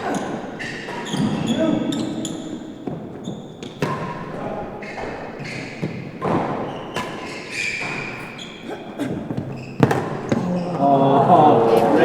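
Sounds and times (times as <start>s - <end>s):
ball struck by racquets: 0.1s - 10.7s
short high squeaks: 6.7s - 8.6s.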